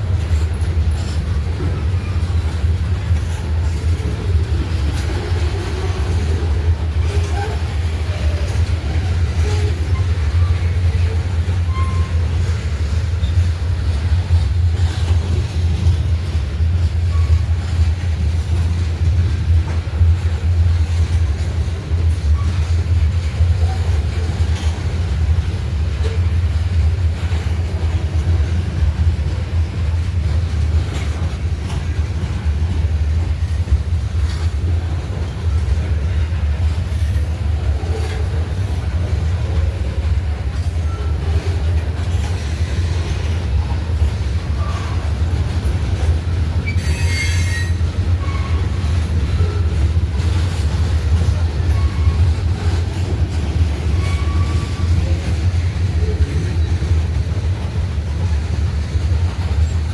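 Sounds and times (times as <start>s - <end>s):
freight train cars rumbling: 0.0s - 59.9s
train wheel squeals: 0.2s - 19.1s, 20.9s - 26.3s, 30.7s - 57.6s.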